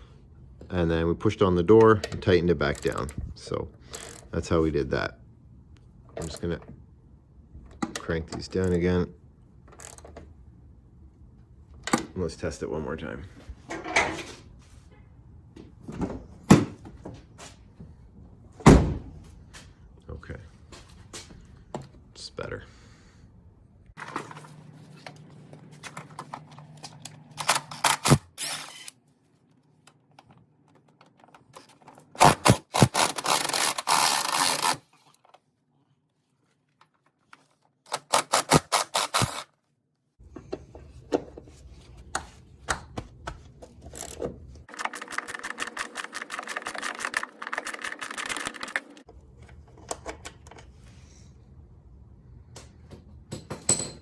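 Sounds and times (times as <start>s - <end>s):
ratchet wrench clicking: 32.2s - 34.8s, 37.9s - 39.4s.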